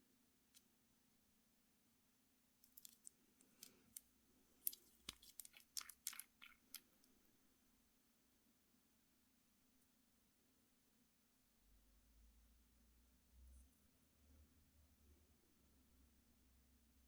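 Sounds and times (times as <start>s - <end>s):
packaging clicking and crackling: 2.7s - 6.8s.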